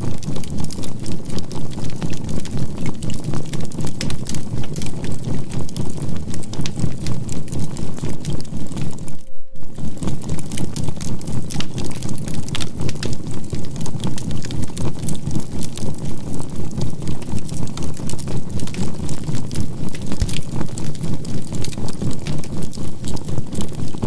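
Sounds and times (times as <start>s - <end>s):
campfire crackling and popping: 0.0s - 24.0s
steady pulsing tone: 7.4s - 11.1s
low rumble: 8.0s - 11.2s.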